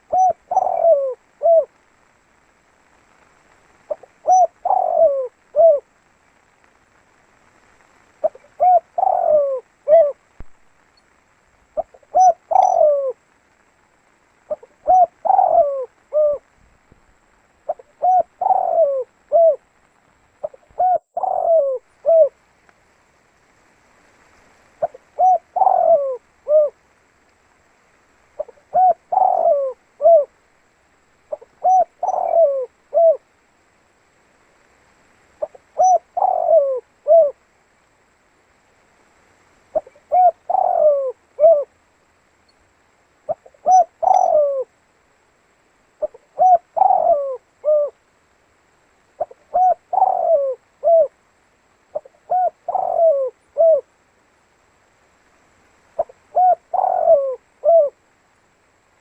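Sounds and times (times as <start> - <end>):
dove cooing: 0.0 - 1.9, 3.9 - 5.9, 8.2 - 10.3, 11.8 - 13.3, 14.5 - 16.5, 17.7 - 19.7, 20.4 - 22.4, 24.6 - 26.8, 28.4 - 30.4, 31.2 - 33.4, 35.4 - 37.4, 39.7 - 41.8, 43.2 - 44.8, 46.0 - 48.1, 49.2 - 51.2, 51.9 - 54.0, 56.0 - 58.0.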